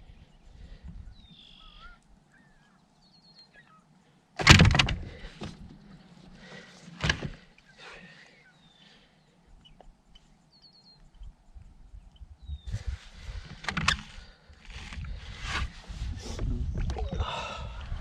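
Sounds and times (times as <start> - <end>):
small birds chirping: 0.0 - 4.3, 7.4 - 14.6.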